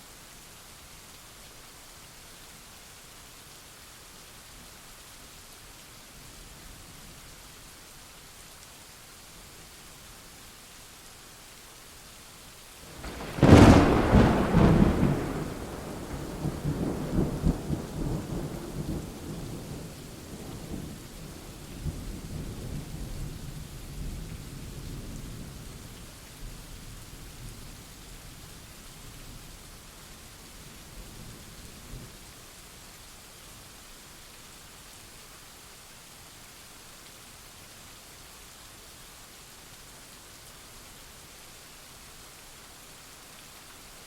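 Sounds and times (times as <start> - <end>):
steady rain: 0.0 - 44.0
thunderclap rolling into rumble: 13.0 - 19.8.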